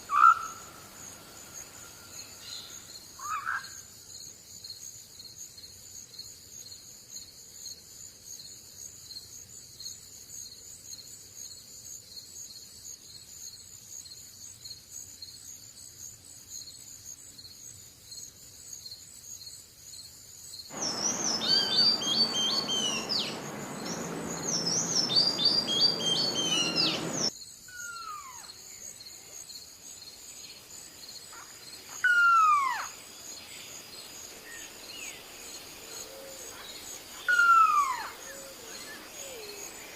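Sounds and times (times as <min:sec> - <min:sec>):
insects trilling: 0:00.0 - 0:39.9
downward-swooping bird call: 0:00.1 - 0:00.7, 0:20.7 - 0:28.5, 0:32.0 - 0:32.9, 0:37.3 - 0:39.6
rushing noise: 0:20.7 - 0:27.3
birds singing: 0:20.7 - 0:28.3, 0:36.6 - 0:39.6
quick falling whistled bird notes: 0:20.8 - 0:27.3.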